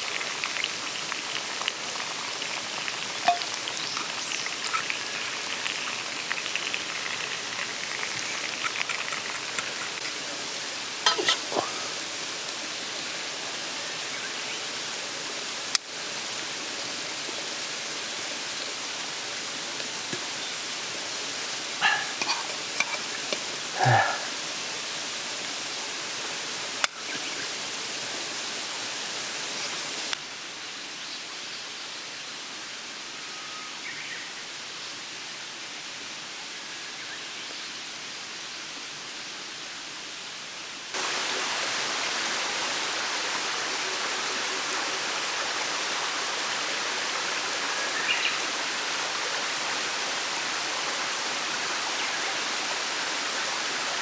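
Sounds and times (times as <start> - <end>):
stream rushing: 0.0 - 30.1, 41.0 - 54.0.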